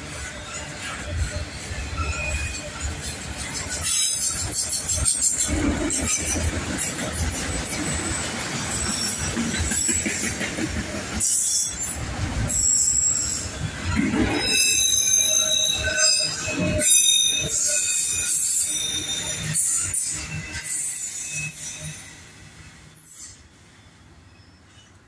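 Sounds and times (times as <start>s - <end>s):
freight train wheels on rails: 0.0s - 25.0s
high-pitched wheel squeal: 14.4s - 22.3s.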